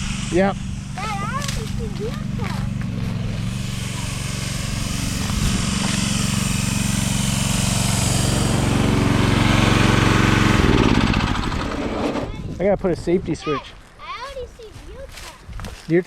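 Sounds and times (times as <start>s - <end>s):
vehicle engine running: 0.0s - 12.6s.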